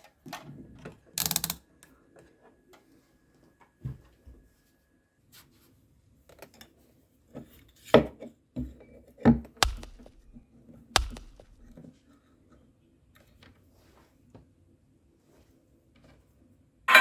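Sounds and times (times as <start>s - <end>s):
sharp knocks and clicks: 9.6s - 10.4s, 11.0s - 11.8s.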